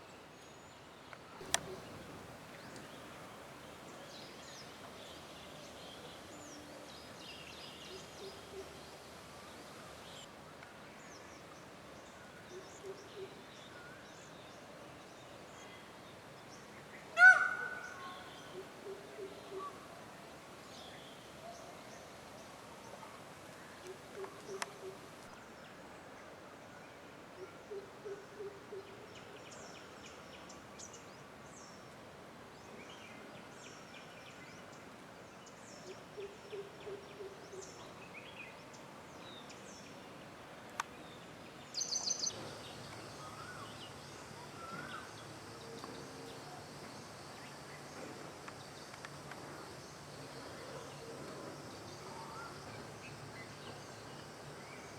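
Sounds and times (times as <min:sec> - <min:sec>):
bird hooting call: 0:01.4 - 0:03.5, 0:17.2 - 0:19.8, 0:23.9 - 0:25.1
small birds chirping: 0:01.4 - 0:05.8.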